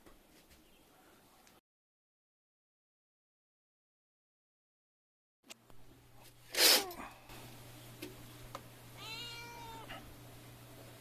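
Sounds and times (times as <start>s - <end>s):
faint steady hum: 5.6s - 11.0s
cat meowing: 9.0s - 10.1s.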